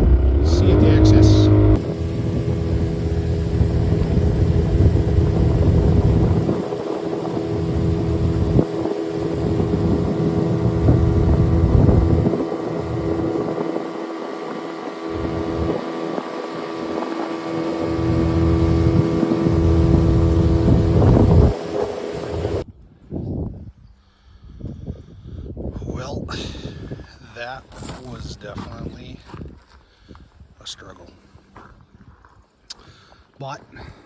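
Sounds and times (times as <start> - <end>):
outboard motor at full throttle: 0.0 - 22.6
wind buffeting microphone: 0.0 - 27.4.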